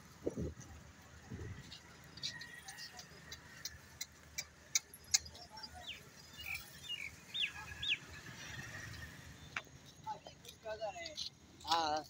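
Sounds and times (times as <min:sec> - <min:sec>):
small bird chirping: 0:04.7 - 0:08.1.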